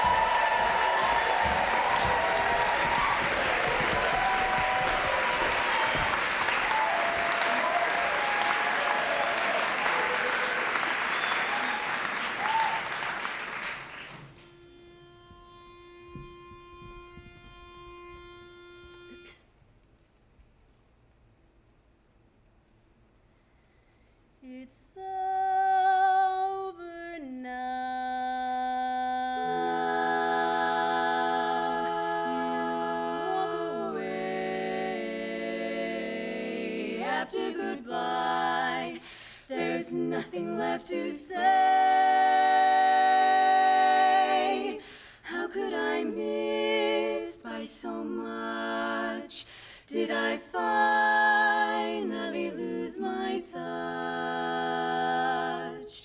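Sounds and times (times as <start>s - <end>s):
women's chorus singing a cappella: 0.0s - 11.6s, 24.5s - 56.0s
audience applauding: 0.0s - 14.5s.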